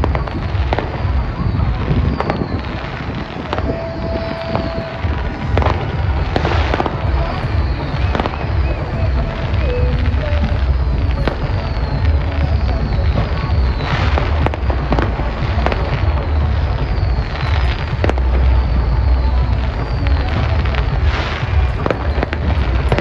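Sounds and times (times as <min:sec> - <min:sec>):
falling firework whistles: 0:00.0 - 0:23.0
fireworks booms: 0:00.0 - 0:23.0
fireworks cracks: 0:00.0 - 0:23.0.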